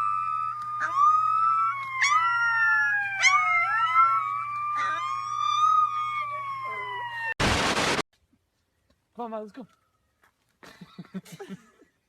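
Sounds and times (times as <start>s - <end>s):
dog howling: 0.0s - 7.3s
wailing sirens: 0.0s - 8.0s.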